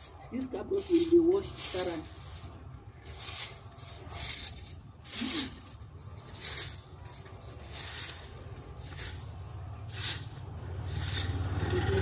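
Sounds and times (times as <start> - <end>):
broom swishing on dry ground: 0.0 - 11.9.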